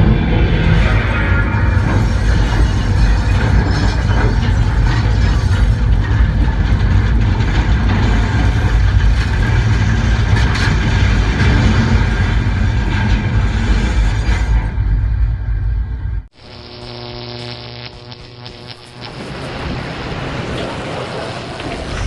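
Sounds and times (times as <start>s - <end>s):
roaring storm winds: 0.0s - 16.3s, 19.0s - 22.0s.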